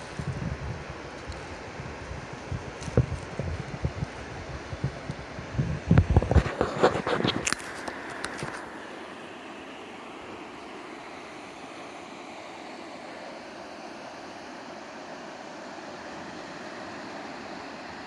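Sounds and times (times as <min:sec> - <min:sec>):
river water rushing: 0:07.4 - 0:18.0.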